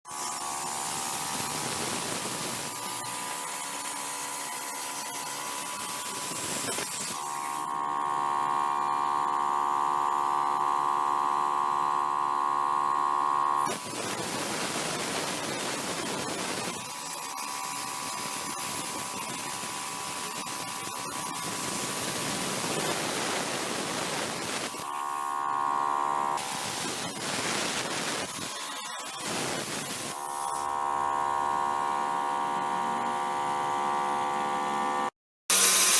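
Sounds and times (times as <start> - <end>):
plasma torch hissing: 18.0 - 25.3, 26.4 - 28.5, 35.5 - 35.9.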